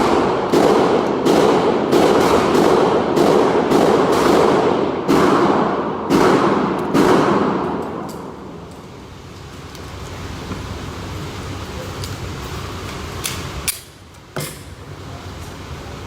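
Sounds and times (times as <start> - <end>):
gunshots echoing: 0.0 - 8.6.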